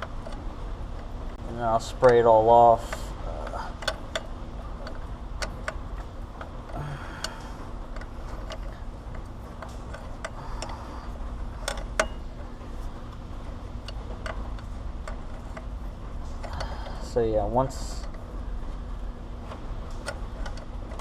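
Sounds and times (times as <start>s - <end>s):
low steady hum: 0.0s - 21.0s
wrench clicking on metal fitting: 2.0s - 5.8s.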